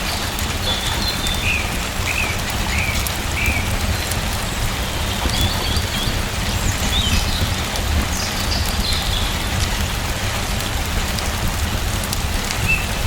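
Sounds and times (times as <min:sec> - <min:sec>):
steady rain: 0:00.0 - 0:13.0
bird chirping: 0:00.6 - 0:09.5.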